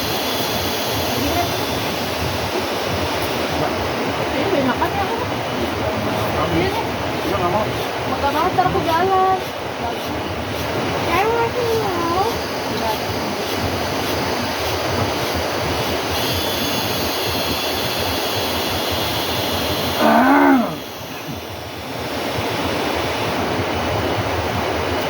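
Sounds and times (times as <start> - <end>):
loud pitched call: 20.0 - 20.9.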